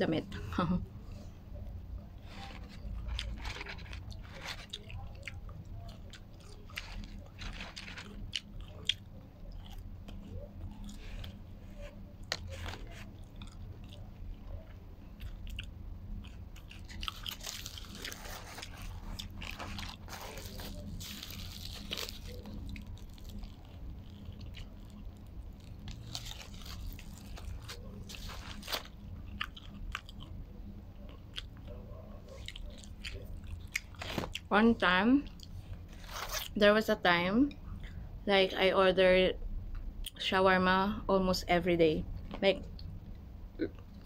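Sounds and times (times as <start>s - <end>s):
foil and paper crinkling: 2.2s - 4.8s, 6.8s - 8.3s, 16.8s - 29.0s
chewing and biting: 2.2s - 34.5s.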